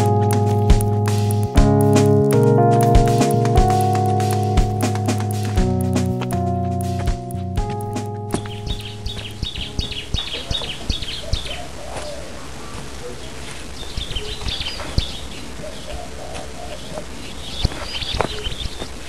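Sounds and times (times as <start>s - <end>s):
small birds chirping: 7.6s - 19.0s.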